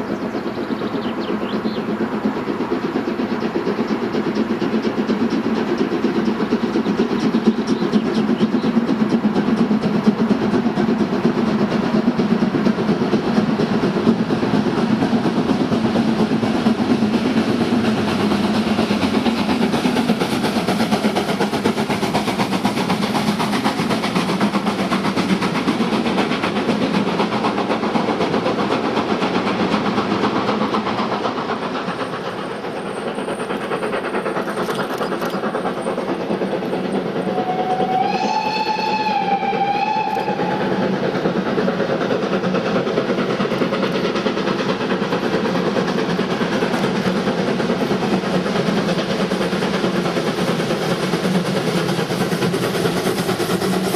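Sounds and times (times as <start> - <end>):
steam train running: 0.0 - 53.9
steam whistle: 37.3 - 40.9.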